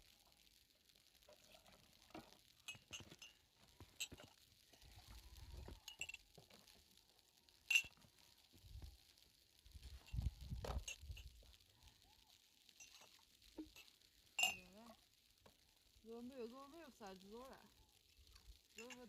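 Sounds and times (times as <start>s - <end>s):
light clinks of small objects: 1.3s - 6.9s, 7.6s - 8.8s, 9.8s - 12.0s, 12.7s - 19.0s.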